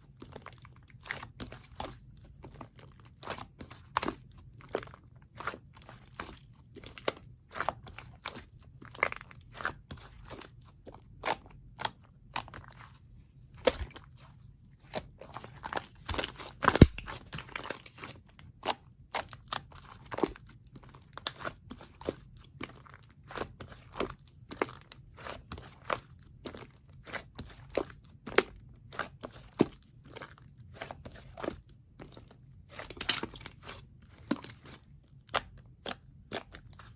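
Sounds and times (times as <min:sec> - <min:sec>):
slime squished by hand: 0:13.6 - 0:14.2, 0:14.9 - 0:18.2.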